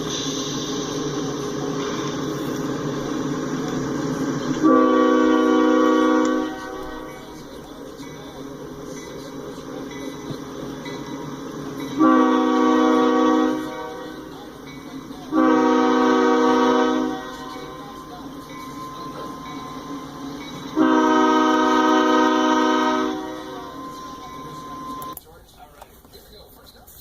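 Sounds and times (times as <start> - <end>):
train rumbling past: 0.0 - 26.9
locomotive air horn blasts: 4.6 - 7.2, 12.0 - 14.3, 15.3 - 18.0, 18.8 - 25.1.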